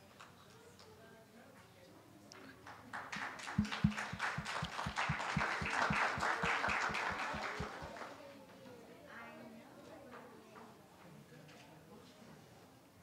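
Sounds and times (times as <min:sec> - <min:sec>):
scattered applause: 0:02.7 - 0:08.2
group clapping in rhythm: 0:03.2 - 0:08.1.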